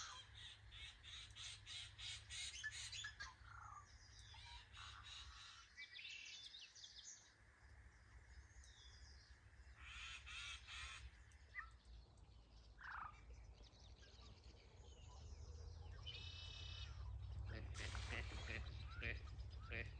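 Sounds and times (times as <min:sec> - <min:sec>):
wild birds chirping and trilling: 0:00.0 - 0:19.9
steady low rumble: 0:11.8 - 0:19.9.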